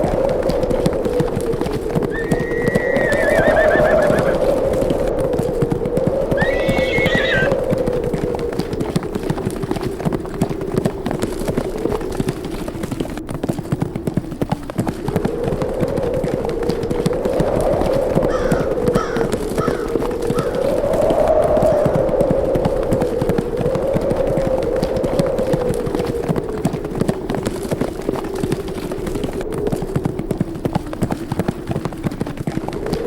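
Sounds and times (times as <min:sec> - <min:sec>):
hooves of galloping horses: 0:00.0 - 0:33.0
wind howling: 0:00.0 - 0:33.0
horse whinnying: 0:02.1 - 0:04.5, 0:06.3 - 0:07.6.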